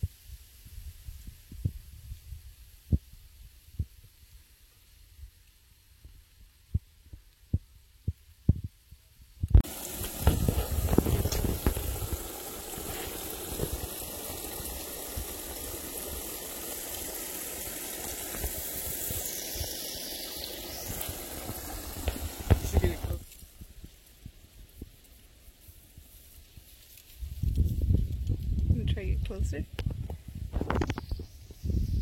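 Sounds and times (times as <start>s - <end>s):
steady rushing noise: 17.3s - 23.3s.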